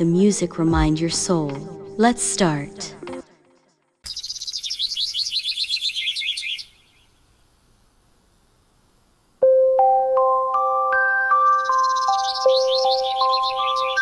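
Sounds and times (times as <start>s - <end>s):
songbird twittering trill: 4.1s - 7.1s, 10.6s - 14.0s
soft chime-like music: 9.4s - 14.0s.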